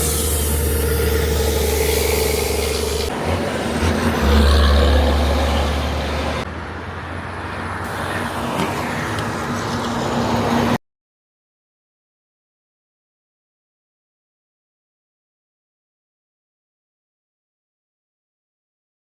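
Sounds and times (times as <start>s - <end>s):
diesel truck engine: 0.0s - 10.8s
road and traffic noise: 0.0s - 10.8s.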